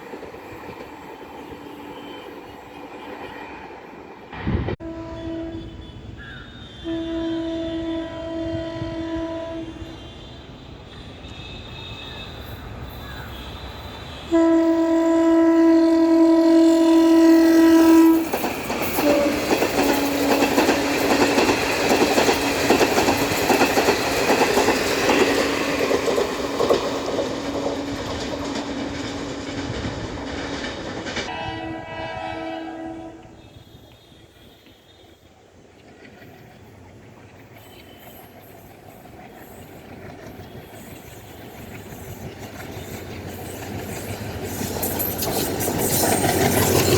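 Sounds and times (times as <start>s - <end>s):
train horn: 1.6s - 3.4s, 4.8s - 23.7s, 26.4s - 30.1s, 31.3s - 35.4s
train wheels clattering: 17.7s - 31.9s, 37.4s - 46.9s.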